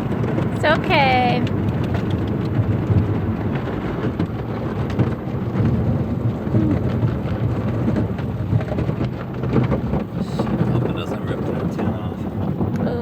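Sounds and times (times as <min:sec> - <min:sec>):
car wash water spray and clatter: 0:00.0 - 0:13.0.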